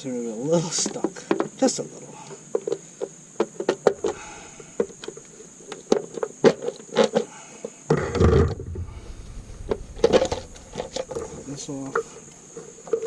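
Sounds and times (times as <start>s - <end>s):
low thump: 8.3s - 11.6s.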